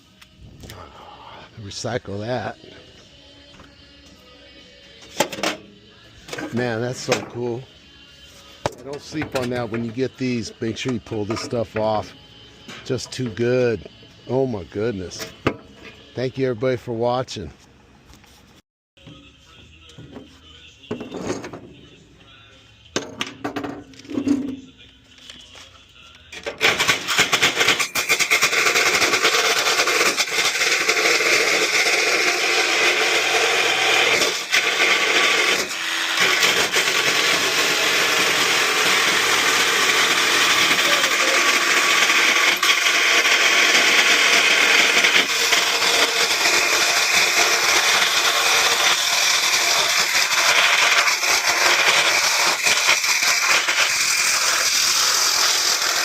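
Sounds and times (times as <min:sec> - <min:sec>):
power tool cutting metal: 0:08.7 - 0:12.0, 0:26.5 - 0:56.0.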